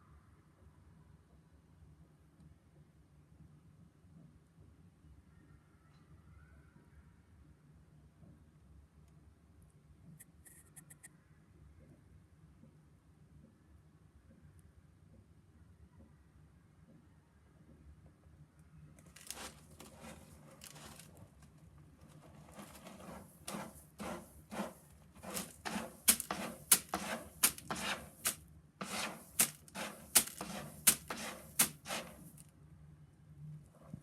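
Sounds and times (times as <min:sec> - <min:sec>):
soft rustling: 0:19.0 - 0:32.5.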